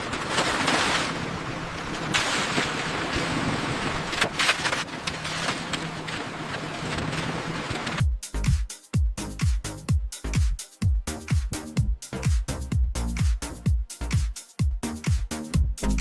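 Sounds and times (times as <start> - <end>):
electronic dance music: 8.0 - 16.0.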